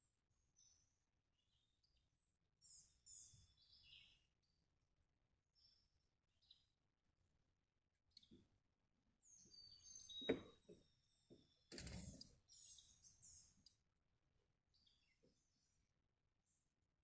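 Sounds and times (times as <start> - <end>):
faint bird chirps and whistles: 9.2 - 13.7.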